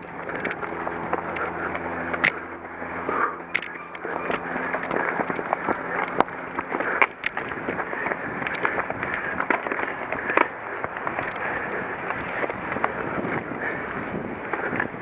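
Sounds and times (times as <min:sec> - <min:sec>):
bike rattling clicks: 0:00.0 - 0:15.0
bike tyres rumbling on rough ground: 0:00.0 - 0:15.0
wind on microphone: 0:11.0 - 0:15.0.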